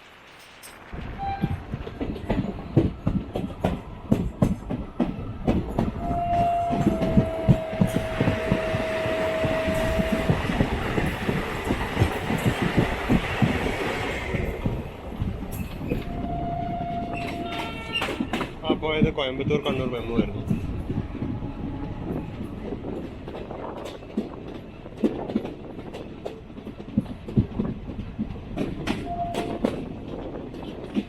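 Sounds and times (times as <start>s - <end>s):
train rushing noise: 0.0s - 31.0s
train wheels clattering: 0.0s - 31.0s
train horn blast: 1.0s - 1.7s, 6.0s - 11.4s, 16.0s - 18.4s, 29.0s - 29.8s.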